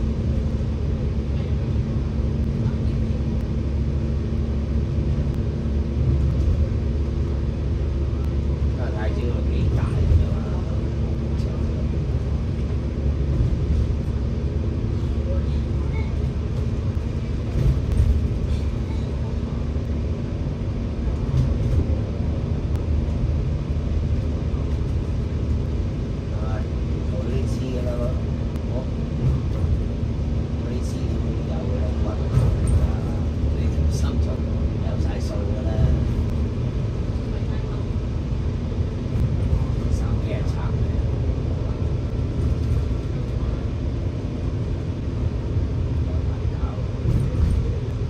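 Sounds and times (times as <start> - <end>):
bus engine drone: 0.0 - 48.0.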